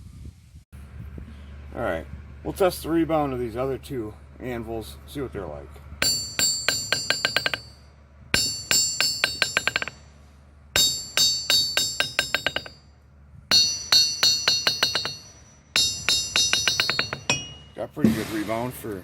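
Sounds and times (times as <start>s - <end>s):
hammer bouncing on anvil: 6.0s - 7.8s, 8.4s - 10.1s, 10.8s - 12.9s, 13.5s - 18.3s.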